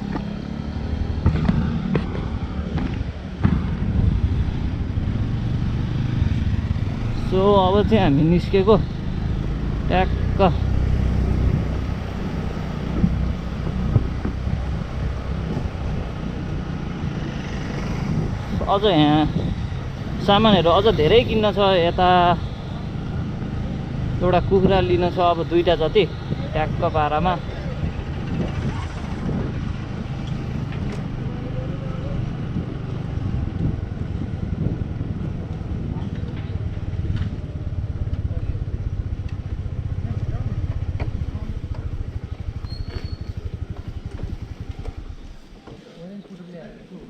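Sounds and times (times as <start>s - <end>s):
wind buffeting microphone: 0.0s - 45.6s
scooter engine running: 0.0s - 45.9s.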